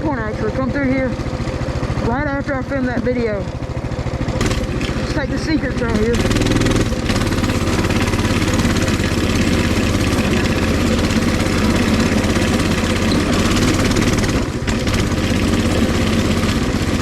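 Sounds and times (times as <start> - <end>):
mini bike engine running: 0.0 - 17.0.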